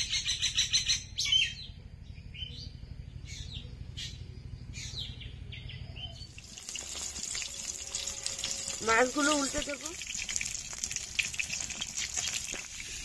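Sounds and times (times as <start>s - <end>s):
steady low hum: 0.0s - 9.7s
small birds chirping: 0.0s - 11.5s.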